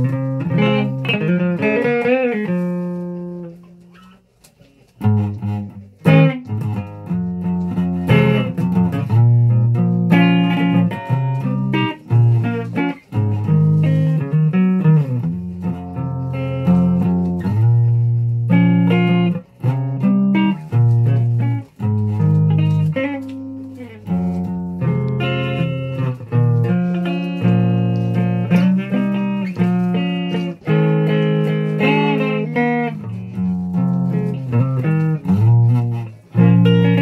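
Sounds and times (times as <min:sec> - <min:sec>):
guitar plucked and strummed: 0:00.0 - 0:37.0.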